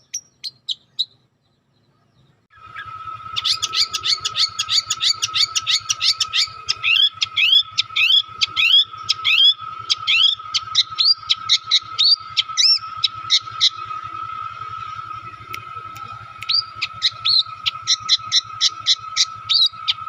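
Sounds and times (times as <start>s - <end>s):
songbird chirping rapidly: 0.0s - 20.0s
steady high-pitched tone: 2.5s - 20.0s.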